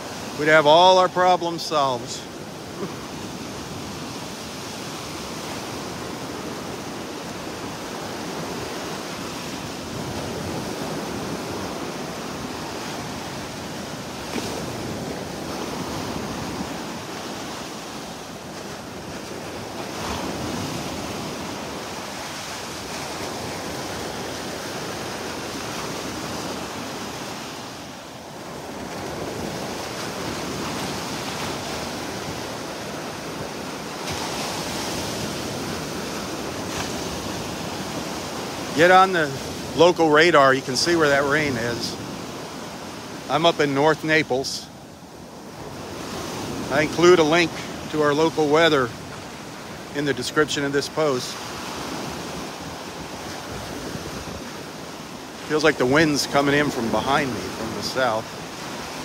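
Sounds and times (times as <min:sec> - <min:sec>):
surf washing onto beach: 0:00.0 - 0:59.0
wind rumbling on microphone: 0:51.4 - 0:59.0.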